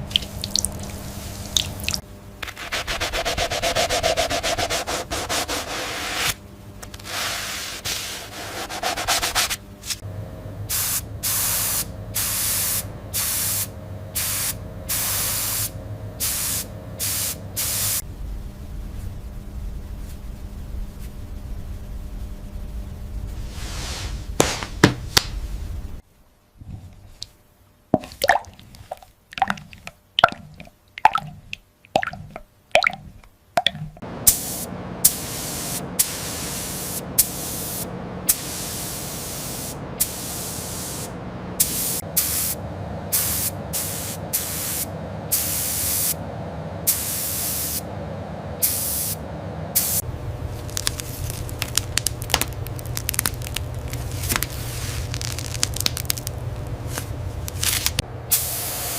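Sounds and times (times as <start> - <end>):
sandblasting gun hissing bursts: 10.7 - 18.0, 34.3 - 46.2
steady background noise: 24.2 - 58.9.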